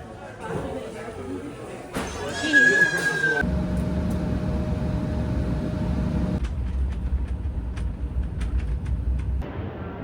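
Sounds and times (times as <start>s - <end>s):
vehicle rumble in motion: 3.4s - 9.5s.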